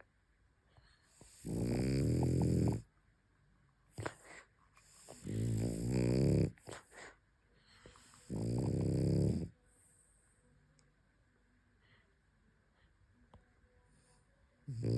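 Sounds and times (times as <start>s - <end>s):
dog snoring: 1.1s - 2.9s, 4.0s - 7.1s, 8.0s - 9.6s, 14.7s - 14.9s.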